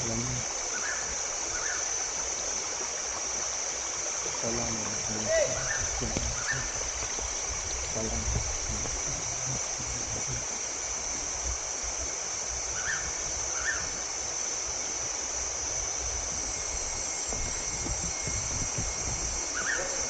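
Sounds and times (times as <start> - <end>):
steady high-pitched hiss: 0.0 - 20.0
stream water running over rocks: 0.0 - 20.0.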